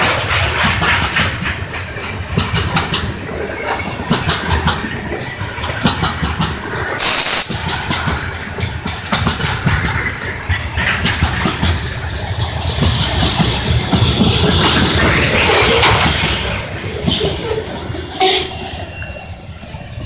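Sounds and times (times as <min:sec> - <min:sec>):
train wheels rumbling and clicking: 0:00.0 - 0:20.0
loud hiss: 0:07.0 - 0:07.9.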